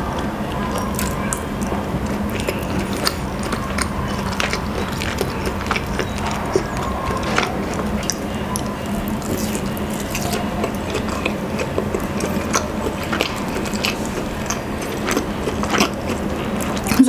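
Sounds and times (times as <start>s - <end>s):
wet chewing and mouth clicks: 0.0s - 17.0s.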